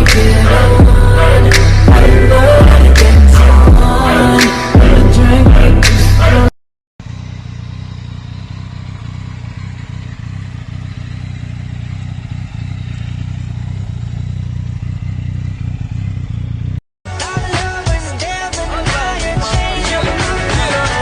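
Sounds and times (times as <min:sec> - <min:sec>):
motorcycle engine running: 0:07.0 - 0:16.8.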